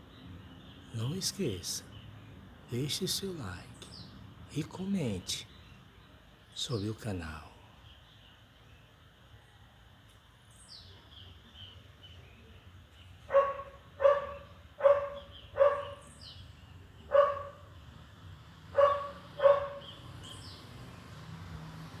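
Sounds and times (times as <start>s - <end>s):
dog barking: 13.3s - 16.1s, 17.1s - 17.7s, 18.7s - 20.0s.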